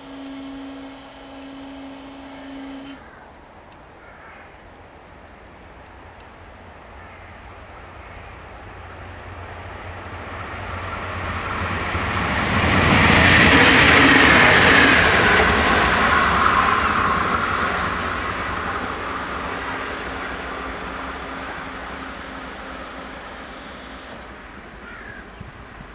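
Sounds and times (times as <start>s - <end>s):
train whine falling in pitch: 0.0s - 3.0s, 10.7s - 25.9s
diesel train passing: 0.0s - 3.8s, 5.0s - 25.9s.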